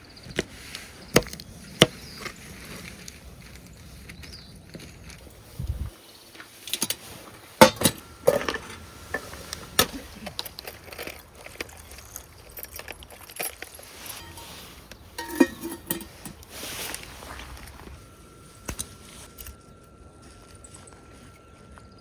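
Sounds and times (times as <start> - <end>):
dishes and utensils clinking: 6.7 - 11.7, 12.7 - 21.6.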